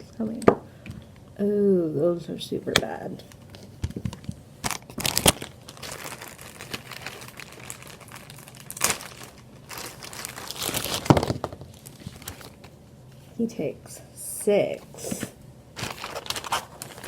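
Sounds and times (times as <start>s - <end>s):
crinkly rustling: 3.3s - 13.4s, 15.8s - 17.0s.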